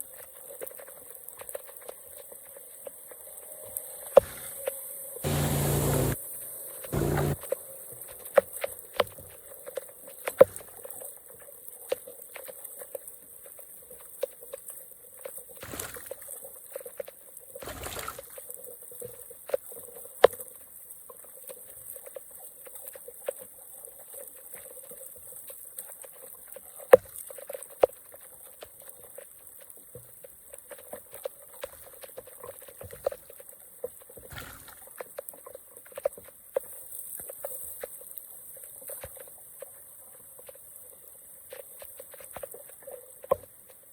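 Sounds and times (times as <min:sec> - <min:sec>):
small drips and clicks: 0:00.0 - 0:05.4, 0:06.2 - 0:43.9
water trickling through drain: 0:00.0 - 0:12.6
splashing rushes of water: 0:15.6 - 0:16.4, 0:17.6 - 0:18.6, 0:34.1 - 0:35.4.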